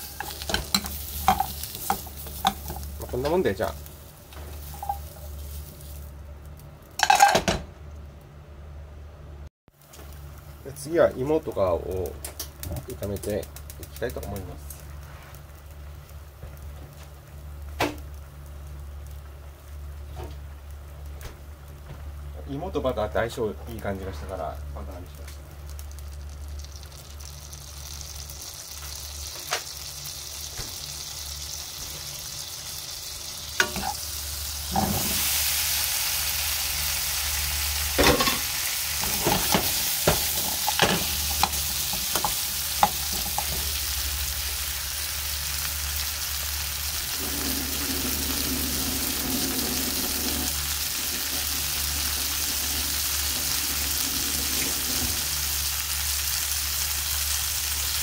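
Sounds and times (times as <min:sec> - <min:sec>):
potatoes sizzling in a frying pan: 0:00.0 - 0:07.2, 0:09.8 - 0:58.0
metal ladle scraping a pan: 0:04.6 - 0:05.2.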